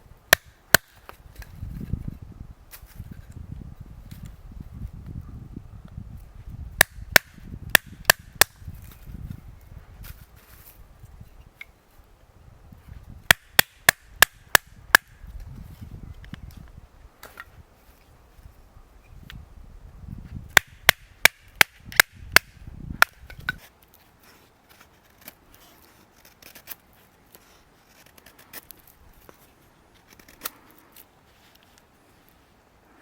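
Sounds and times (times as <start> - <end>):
axe chopping wood: 0.3 - 1.2, 6.8 - 8.7, 13.3 - 15.2, 20.6 - 23.6.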